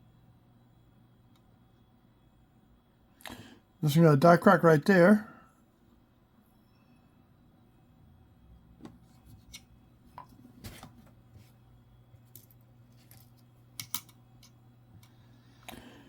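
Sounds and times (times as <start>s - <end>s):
faint steady hum: 0.0s - 16.0s
coins clicking and tapping: 12.2s - 14.6s.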